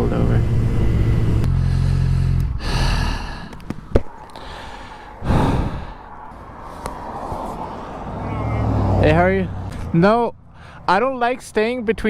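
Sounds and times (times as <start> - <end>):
person sighing heavily: 1.6 - 3.6, 4.2 - 6.2.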